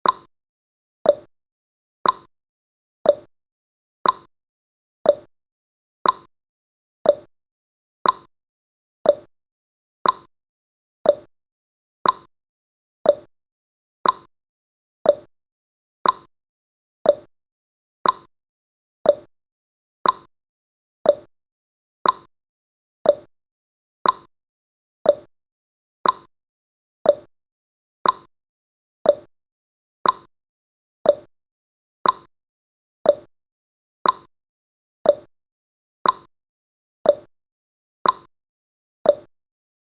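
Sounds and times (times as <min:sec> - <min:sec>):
clock ticking: 0:02.0 - 0:02.3, 0:04.0 - 0:04.3, 0:06.0 - 0:06.3, 0:08.0 - 0:08.3, 0:10.0 - 0:10.3, 0:12.0 - 0:12.3, 0:14.0 - 0:14.3, 0:16.0 - 0:16.3, 0:18.0 - 0:18.3, 0:20.0 - 0:20.3, 0:22.0 - 0:22.3, 0:23.1 - 0:23.3, 0:24.0 - 0:24.3, 0:26.0 - 0:26.3, 0:28.0 - 0:28.3, 0:29.1 - 0:29.3, 0:30.0 - 0:30.3, 0:31.1 - 0:31.3, 0:32.0 - 0:32.3, 0:33.1 - 0:33.3, 0:34.0 - 0:34.3, 0:35.1 - 0:35.3, 0:36.0 - 0:36.3, 0:38.0 - 0:38.3, 0:39.1 - 0:39.3.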